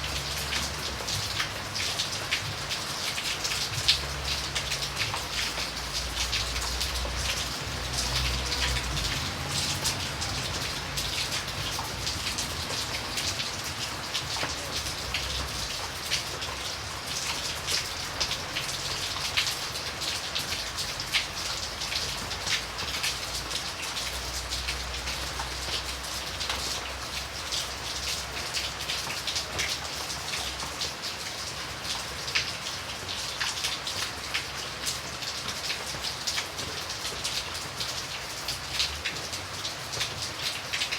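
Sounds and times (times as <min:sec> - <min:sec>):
raindrops striking close by: 0:00.0 - 0:40.9
steady rain: 0:00.0 - 0:40.9.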